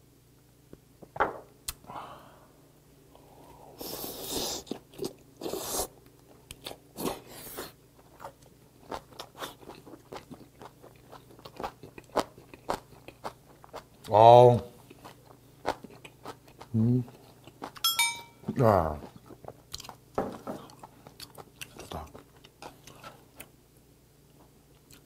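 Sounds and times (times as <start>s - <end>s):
wet chewing: 4.6s - 14.1s, 14.8s - 17.8s, 20.6s - 23.5s.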